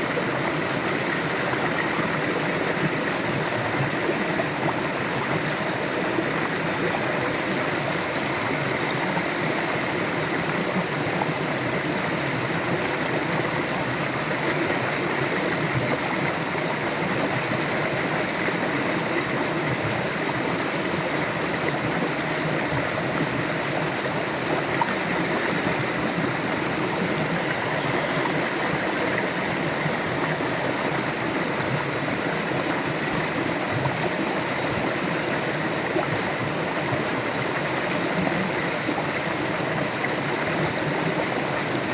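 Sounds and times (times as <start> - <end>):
river water flowing over rocks: 0.0 - 41.9.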